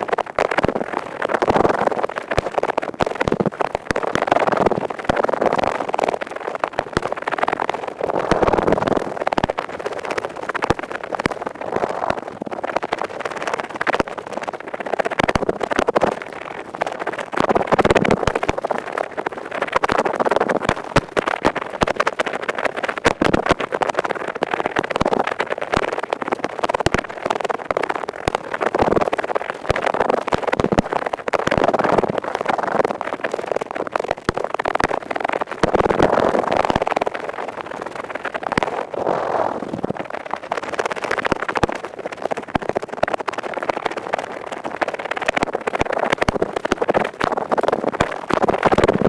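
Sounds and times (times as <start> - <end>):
ear pick scratching in ear: 7.9 - 9.2, 11.6 - 12.4, 38.6 - 40.1.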